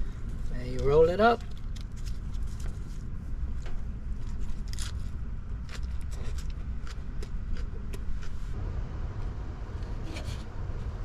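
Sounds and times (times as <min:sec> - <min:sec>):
steady low rumble: 0:00.0 - 0:11.0
crunching chewing of lettuce: 0:00.8 - 0:03.1, 0:04.1 - 0:08.6.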